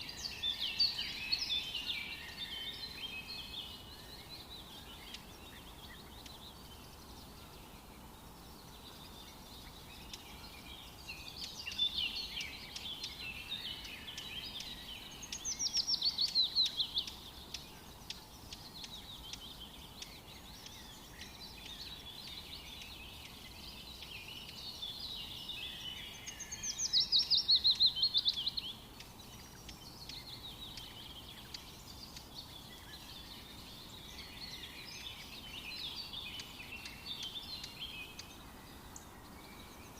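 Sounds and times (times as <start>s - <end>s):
background hiss: 0.0s - 39.9s
forest birds singing: 0.0s - 39.9s.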